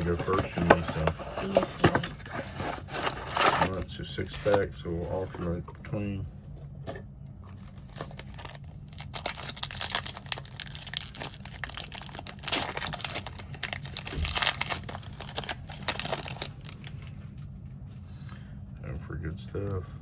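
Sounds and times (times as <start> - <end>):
plastic packaging crinkling and tearing: 0.0 - 4.6, 7.5 - 17.1.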